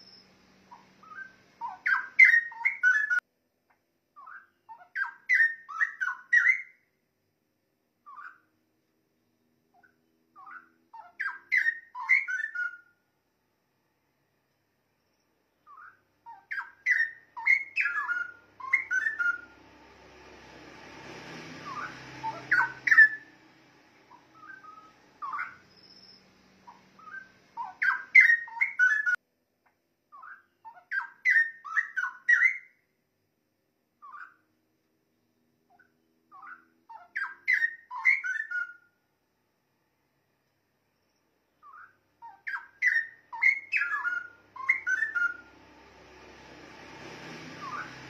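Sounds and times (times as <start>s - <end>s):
bird singing whistled notes: 0.0s - 3.2s, 4.2s - 6.9s, 8.0s - 8.5s, 9.8s - 13.0s, 15.0s - 19.7s, 21.2s - 23.4s, 24.1s - 29.2s, 30.1s - 32.8s, 34.0s - 34.4s, 35.7s - 39.0s, 40.9s - 45.6s, 47.0s - 48.0s
soft rushing noise: 19.4s - 27.6s, 45.4s - 48.0s.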